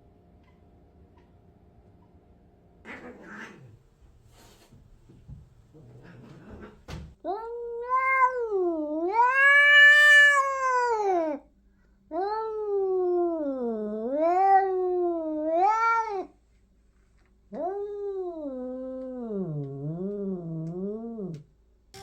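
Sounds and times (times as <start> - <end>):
cat yowling: 2.9 - 3.7, 7.3 - 11.4, 12.1 - 16.3.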